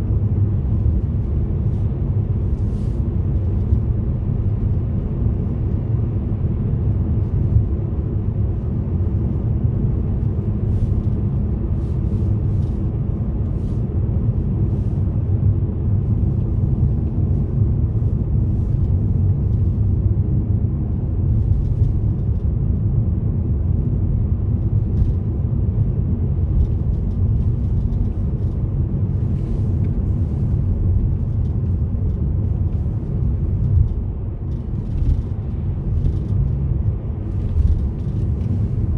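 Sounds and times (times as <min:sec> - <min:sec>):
car engine and tyres rumbling: 0:00.0 - 0:38.9.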